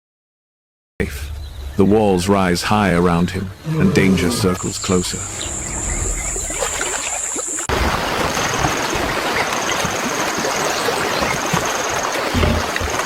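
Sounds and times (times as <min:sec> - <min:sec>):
river water rushing: 0:04.5 - 0:13.0
low rumble: 0:04.6 - 0:07.5
faint insect chirping: 0:04.6 - 0:07.7
high insect trill: 0:04.6 - 0:07.7.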